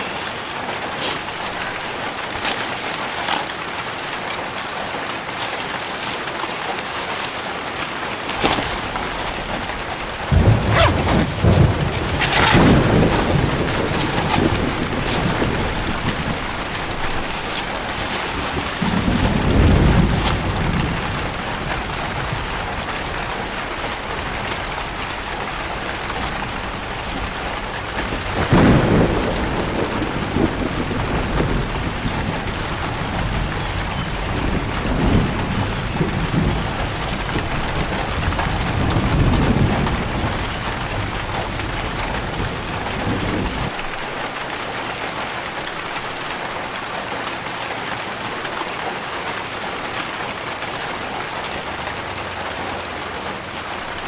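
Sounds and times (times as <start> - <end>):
heavy rain: 0.0 - 54.0
thunder rumbling: 7.3 - 43.8.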